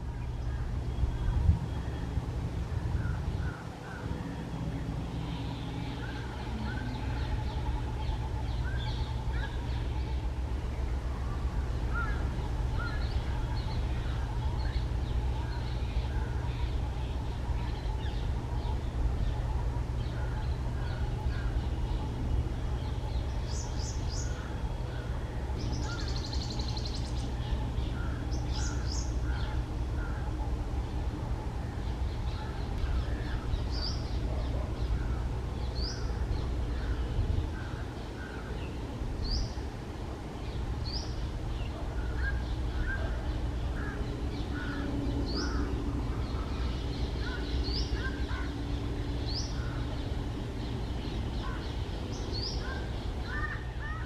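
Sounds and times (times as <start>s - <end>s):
bird chirps and calls: 11.2s - 30.4s, 40.4s - 54.0s.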